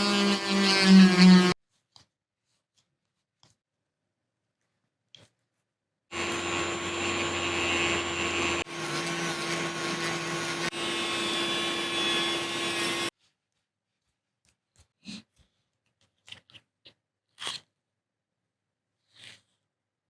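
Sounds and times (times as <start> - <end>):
small electric motor whining: 0.0 - 1.6, 6.1 - 13.1.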